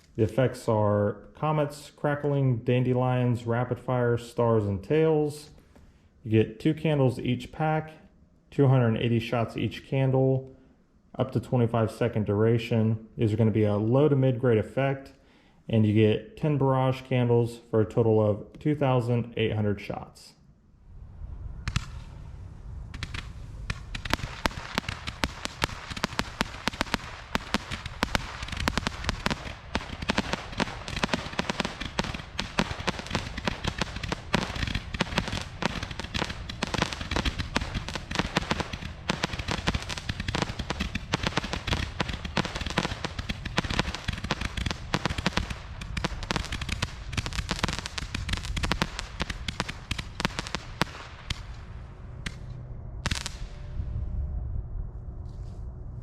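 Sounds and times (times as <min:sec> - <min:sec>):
loud firework reports: 0:00.2 - 0:05.6, 0:21.0 - 0:52.4
fireworks barrage crackling: 0:21.0 - 0:53.8.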